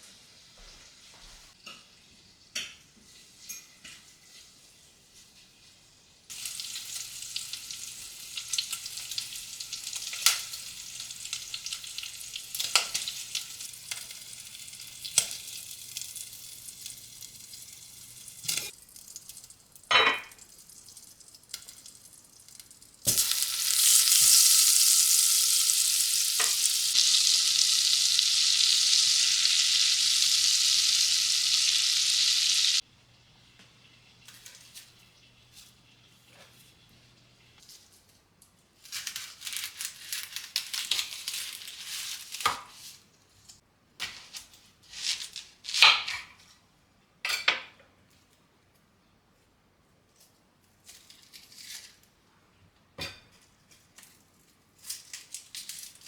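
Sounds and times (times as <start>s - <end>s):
food sizzling in a hot pan: 6.3s - 32.9s.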